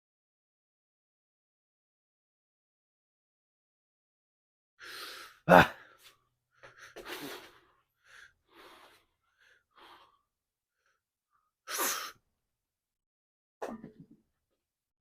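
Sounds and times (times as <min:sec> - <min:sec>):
person breathing hard: 0:04.8 - 0:11.0
loud forceful exhale: 0:11.7 - 0:12.2.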